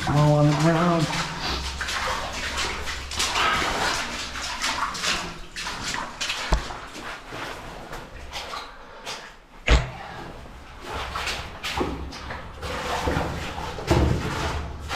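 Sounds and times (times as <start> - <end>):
feet wading through water: 0.0 - 14.9.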